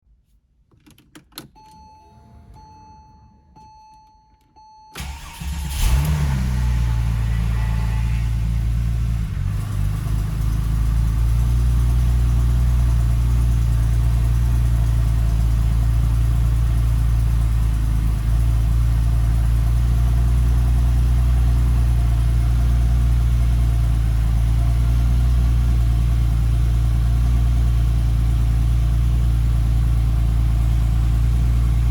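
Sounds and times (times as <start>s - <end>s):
car engine starting and idling: 0.7s - 31.9s
steady beep: 1.6s - 5.0s
engine starter cranking: 5.0s - 8.3s.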